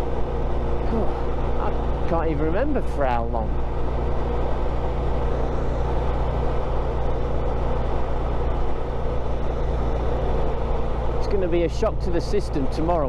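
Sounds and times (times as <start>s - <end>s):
motorcycle engine cruising: 0.0s - 13.0s
road noise: 0.0s - 13.0s.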